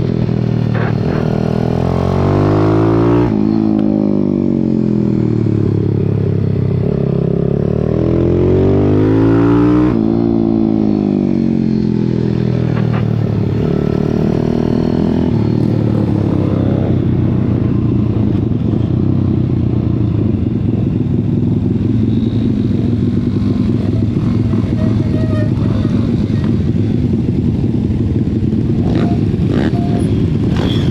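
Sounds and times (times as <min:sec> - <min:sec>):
small motorbike engine revving: 0:28.8 - 0:30.9.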